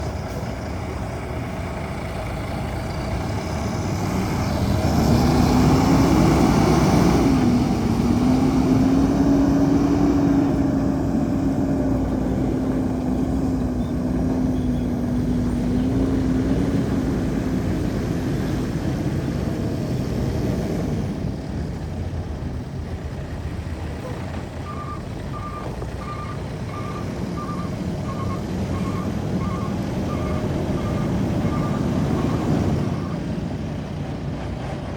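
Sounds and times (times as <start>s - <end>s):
truck diesel engine revving: 0.0s - 34.9s
reversing alarm beeping: 24.6s - 33.2s.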